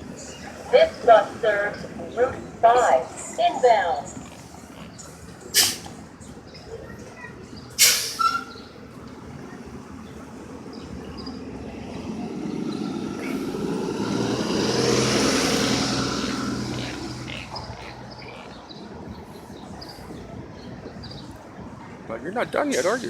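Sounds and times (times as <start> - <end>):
bus engine pulling away: 0.0 - 21.9
air brakes hissing: 5.6 - 5.9, 7.8 - 8.5.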